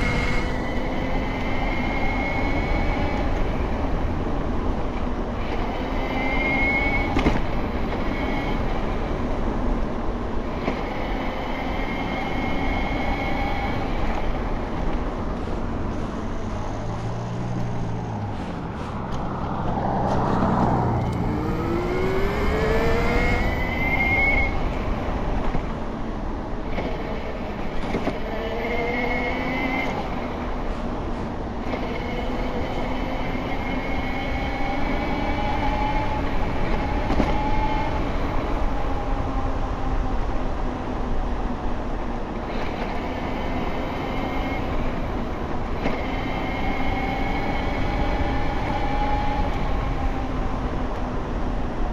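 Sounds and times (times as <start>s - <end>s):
wind noise: 0.0s - 28.2s.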